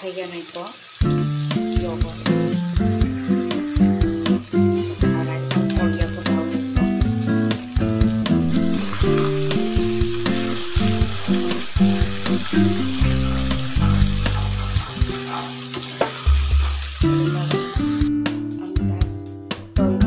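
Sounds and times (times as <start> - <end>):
curry sizzling in oil: 0.0 - 18.6
background music: 1.0 - 20.0
metal spatula stirring: 10.7 - 17.0.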